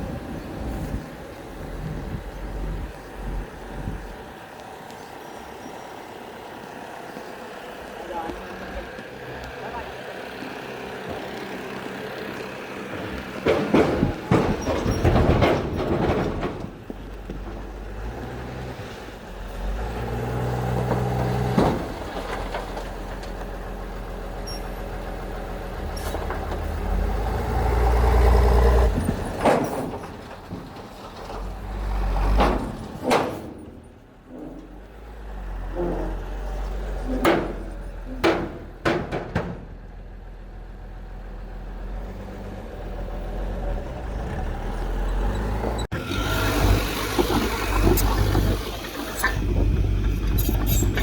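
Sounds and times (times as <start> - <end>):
metallic clanks and knocks: 12.9 - 17.7, 28.9 - 31.5, 32.3 - 34.9, 35.7 - 39.8
heavy machinery diesel engine revving: 24.9 - 29.4, 41.6 - 51.0.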